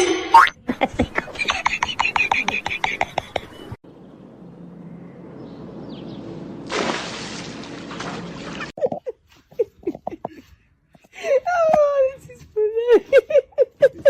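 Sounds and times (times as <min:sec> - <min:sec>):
water rushing: 0:06.6 - 0:08.7.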